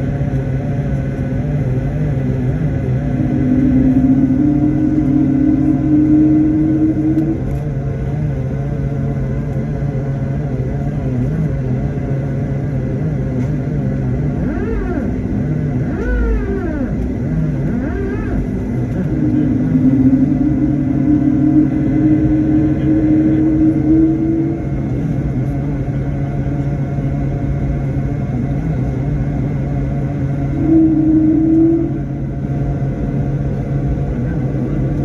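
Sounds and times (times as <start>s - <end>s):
airliner engine drone: 0.0s - 35.0s
higher hum: 0.1s - 9.5s, 13.8s - 35.0s
wavering tones: 2.6s - 7.6s, 17.8s - 25.8s, 30.3s - 33.0s.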